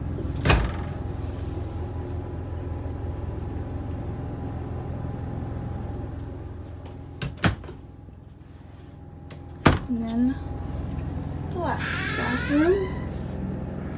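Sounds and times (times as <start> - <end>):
steady low hum: 7.8 - 13.9.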